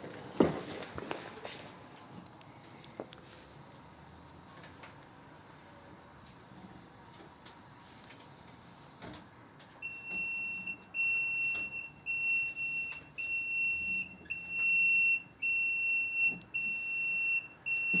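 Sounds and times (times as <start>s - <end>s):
electronic alarm beeps: 9.8s - 18.0s.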